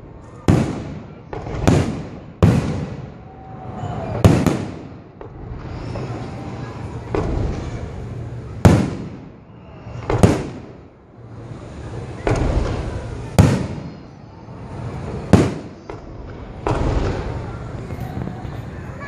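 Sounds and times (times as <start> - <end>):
rumble and crackle of fireworks: 0.0 - 19.0
firework shells bursting: 14.9 - 17.5.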